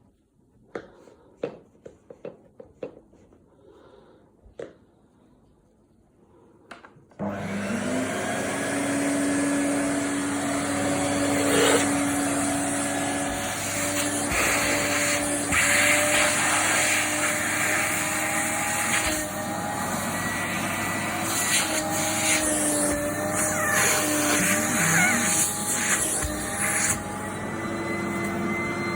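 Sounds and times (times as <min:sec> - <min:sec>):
vacuum cleaner motor whine: 0:07.2 - 0:28.9.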